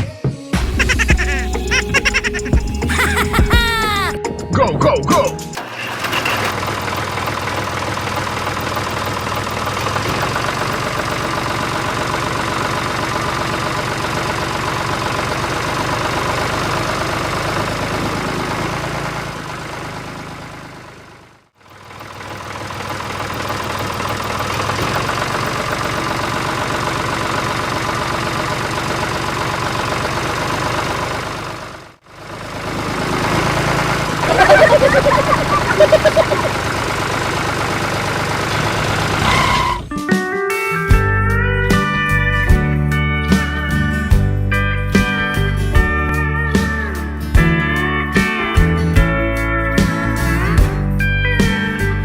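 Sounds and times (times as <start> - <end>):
tractor engine knocking putter: 5.6 - 20.9, 21.6 - 39.8.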